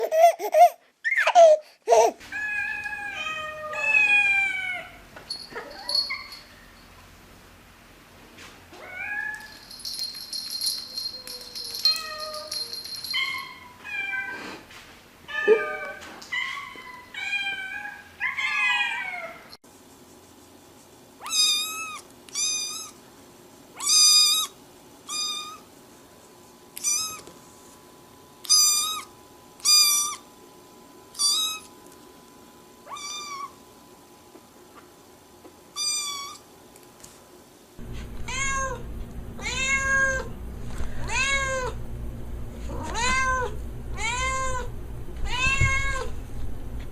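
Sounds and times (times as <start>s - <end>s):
cats meowing: 2.3s - 5.0s, 15.3s - 19.5s, 32.9s - 33.6s, 38.2s - 38.8s, 39.4s - 40.3s, 41.0s - 41.8s, 42.7s - 46.1s
steady hum: 37.8s - 46.9s.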